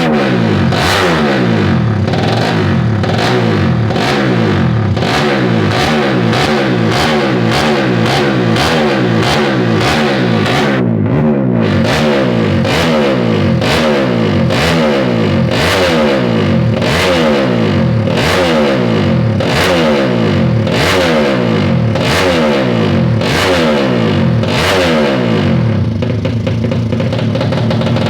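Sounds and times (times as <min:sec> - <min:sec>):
motorcycle engine throttle blips: 0:00.0 - 0:28.0.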